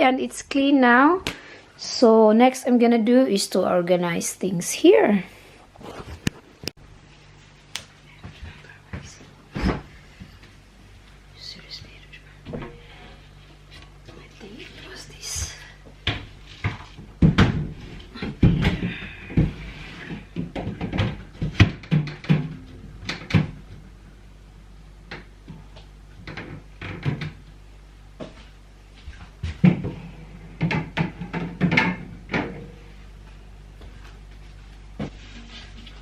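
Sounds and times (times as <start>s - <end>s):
food containers knocking and clattering: 16.1s - 23.8s, 30.6s - 32.8s.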